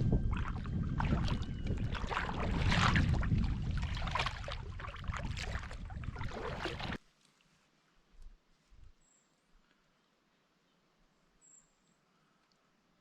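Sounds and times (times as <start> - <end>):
water splashing and lapping: 0.0 - 7.0
wind buffeting microphone: 0.0 - 7.0.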